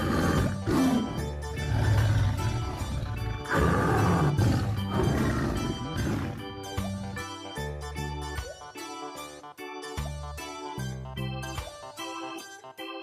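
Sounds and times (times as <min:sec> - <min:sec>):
big cat roaring: 0:00.0 - 0:06.6
background music: 0:00.0 - 0:13.0.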